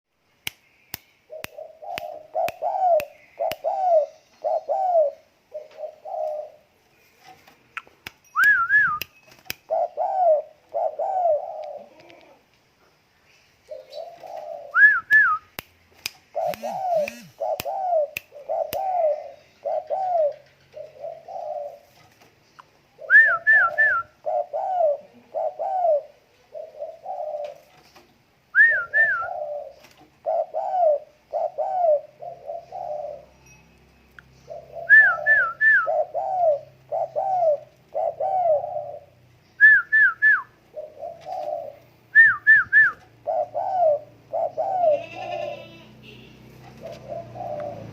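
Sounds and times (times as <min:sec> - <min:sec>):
dove cooing: 0:01.3 - 0:06.8, 0:09.6 - 0:12.4, 0:13.7 - 0:15.2, 0:16.3 - 0:22.1, 0:23.0 - 0:27.9, 0:28.6 - 0:33.3, 0:34.4 - 0:45.9, 0:46.6 - 0:47.9
sharp clicks: 0:15.1 - 0:18.9
higher sharp bird notes: 0:16.3 - 0:21.8.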